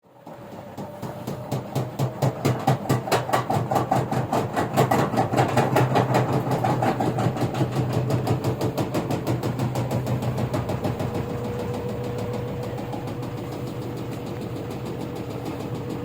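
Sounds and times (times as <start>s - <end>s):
washing machine motor hum: 0.1s - 16.0s
washing machine knocking: 0.2s - 16.0s.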